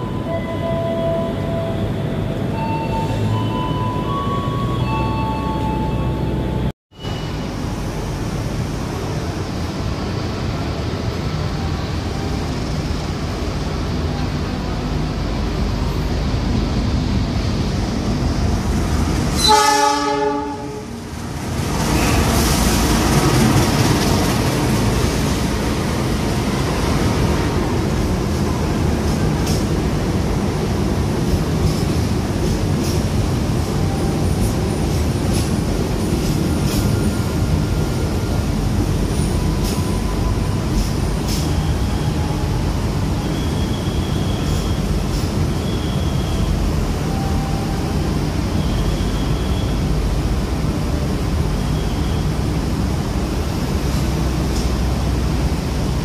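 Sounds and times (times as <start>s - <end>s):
train rumbling past: 0.0s - 56.0s
locomotive horn blast: 19.4s - 21.0s
faint high squeal: 41.4s - 45.0s, 45.6s - 47.7s, 48.6s - 49.8s.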